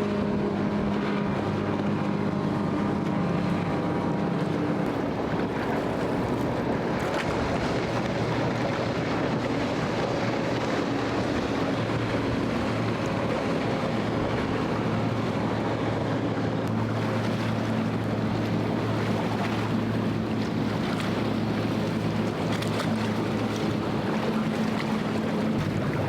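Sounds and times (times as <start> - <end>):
motorboat engine drone: 0.0 - 26.0
moving water: 0.0 - 26.0
wind on microphone: 0.0 - 26.0.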